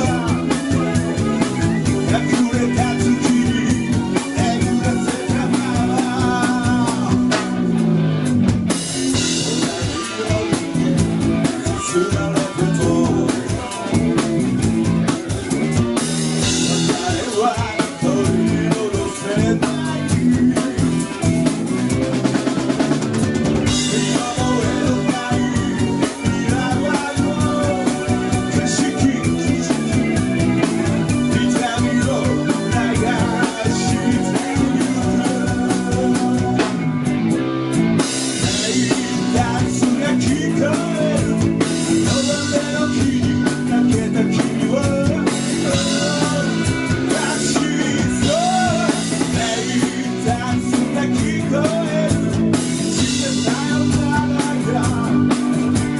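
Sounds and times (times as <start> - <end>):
rock band playing live: 0.0 - 55.9.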